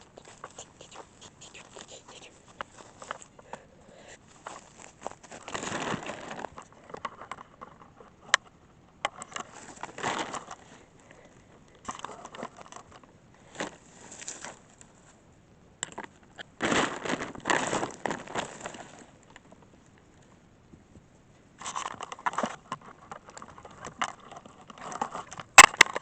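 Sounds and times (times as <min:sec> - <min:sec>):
tarp rustling and crunching: 0:04.3 - 0:06.6, 0:09.5 - 0:10.6, 0:16.6 - 0:19.1.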